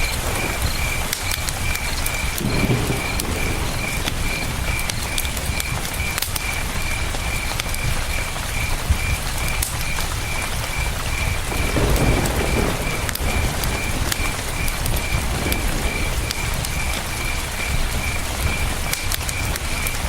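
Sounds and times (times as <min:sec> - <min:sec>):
campfire crackling and popping: 0:00.0 - 0:20.0
cricket chirping: 0:00.0 - 0:20.0.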